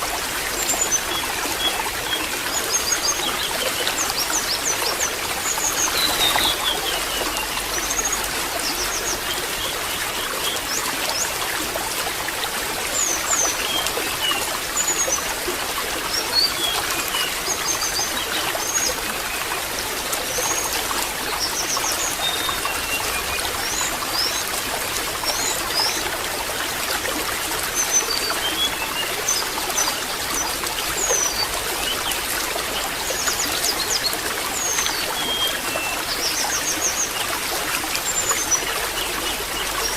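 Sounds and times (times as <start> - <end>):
small birds chirping: 0.7 - 9.4.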